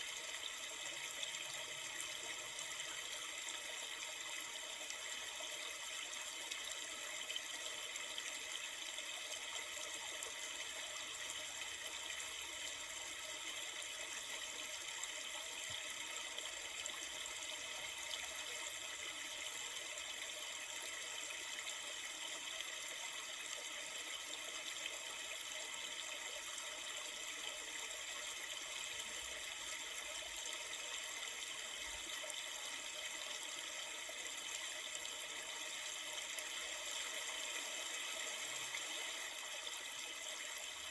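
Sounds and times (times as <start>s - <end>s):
river water flowing: 8.4s - 22.4s.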